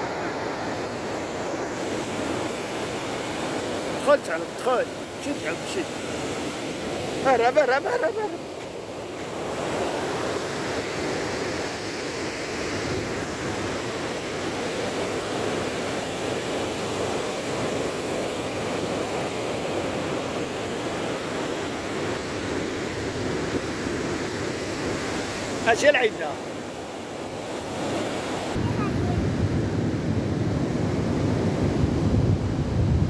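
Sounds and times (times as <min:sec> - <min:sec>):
rough sea waves: 0:00.0 - 0:33.0
wind on microphone: 0:27.8 - 0:33.0.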